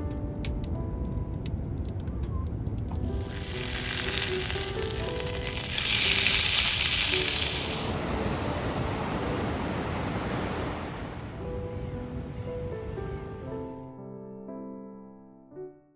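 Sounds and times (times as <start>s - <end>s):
meat sizzling: 3.0s - 8.0s.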